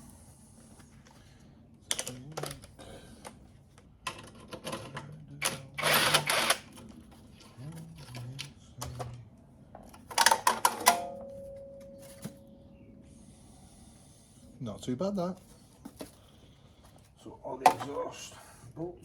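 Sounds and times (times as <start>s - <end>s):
metal ringing: 10.8s - 12.8s.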